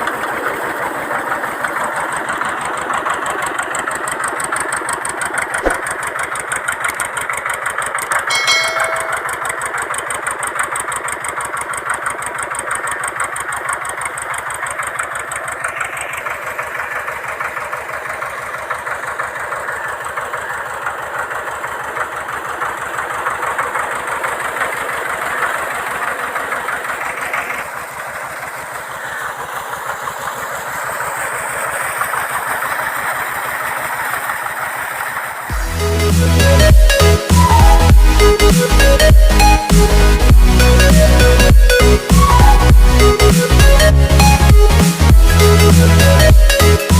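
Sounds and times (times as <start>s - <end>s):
tractor diesel engine running: 0.0s - 46.9s
high-pitched tone: 8.3s - 9.6s, 35.6s - 39.9s, 40.8s - 46.9s.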